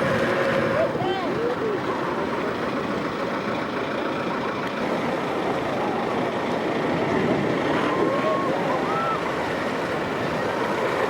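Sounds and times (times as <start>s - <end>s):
wind on microphone: 0.0s - 1.5s
rushing surf: 0.0s - 3.4s, 4.8s - 11.0s
boat engine running: 0.0s - 11.0s.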